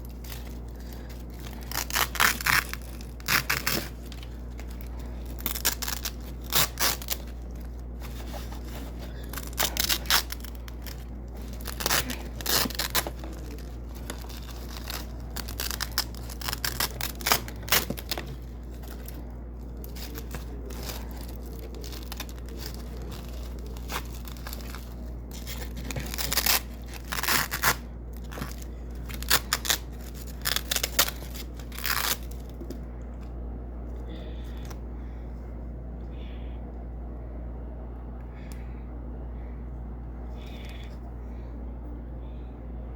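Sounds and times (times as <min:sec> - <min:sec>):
velcro strips ripping: 0:00.0 - 0:19.2, 0:19.8 - 0:32.6.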